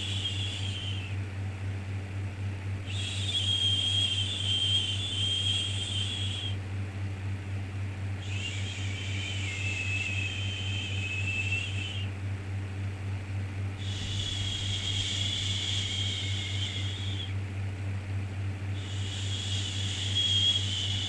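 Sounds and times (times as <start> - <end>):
low background hum: 0.0 - 21.0
person hushing shhh: 13.8 - 16.4.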